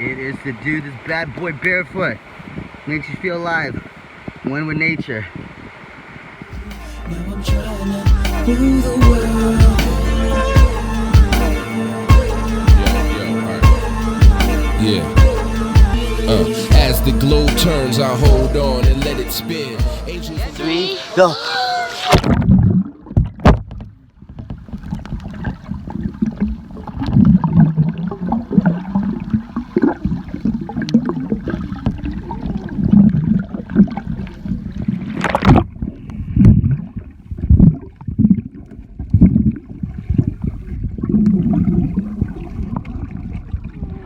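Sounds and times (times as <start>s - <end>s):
sharp water splash: 21.8s - 23.8s, 24.8s - 35.8s
muffled water sloshing and gurgling: 21.9s - 44.0s.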